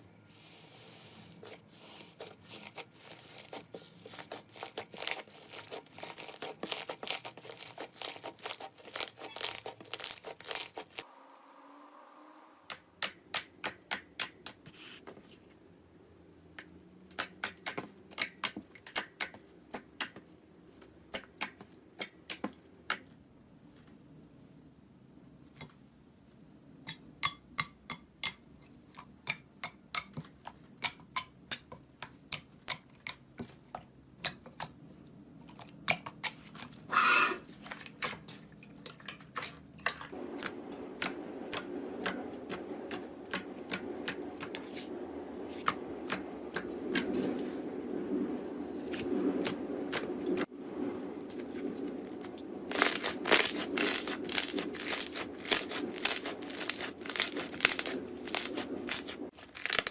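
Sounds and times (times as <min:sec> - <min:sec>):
slime crackling: 0:01.3 - 0:11.0, 0:51.2 - 0:59.9.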